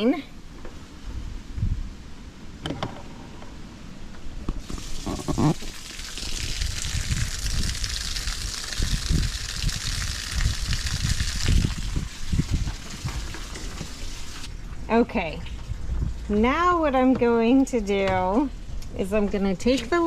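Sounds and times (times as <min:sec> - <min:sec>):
drain water gushing: 0:04.6 - 0:14.8.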